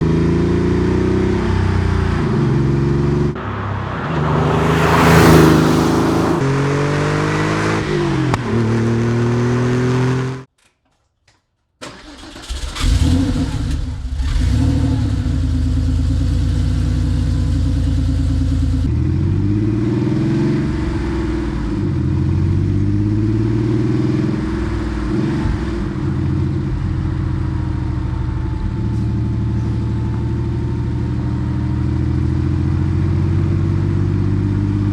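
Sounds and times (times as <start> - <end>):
car engine revving: 0.0 - 10.5
car engine starting: 0.2 - 10.4, 11.8 - 34.9
car engine idling: 3.4 - 6.4, 24.7 - 33.8.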